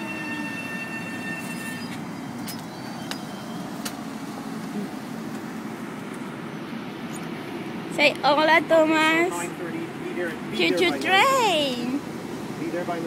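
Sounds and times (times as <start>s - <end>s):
high electric whine: 0.0s - 3.9s
train rumble: 0.0s - 13.0s.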